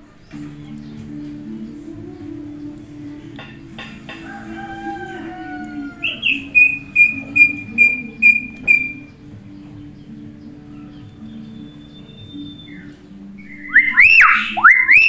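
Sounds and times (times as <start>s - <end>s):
myna bird whistling and clicking: 6.0s - 9.1s, 13.5s - 15.0s.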